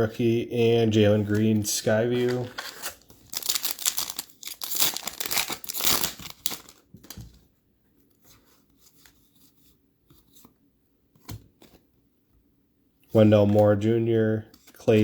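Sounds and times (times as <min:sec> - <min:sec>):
plastic wrapper tearing and crinkling: 0:02.1 - 0:07.2.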